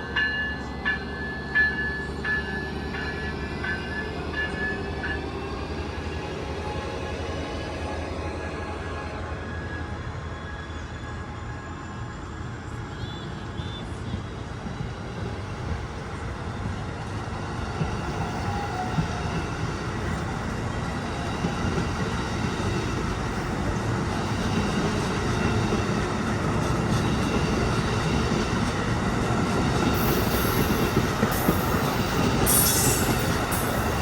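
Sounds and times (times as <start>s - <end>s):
train rumbling past: 0.0s - 34.0s
wheels squealing on rails: 15.1s - 34.0s.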